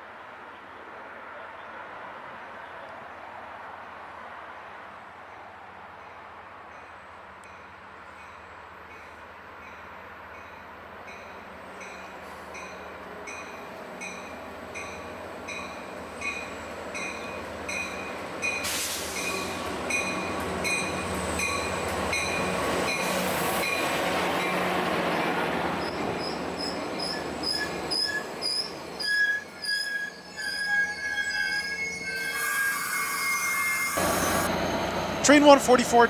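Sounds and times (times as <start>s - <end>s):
diesel train rushing past: 7.9s - 36.0s
train wheels squealing: 10.4s - 24.6s, 25.8s - 36.0s.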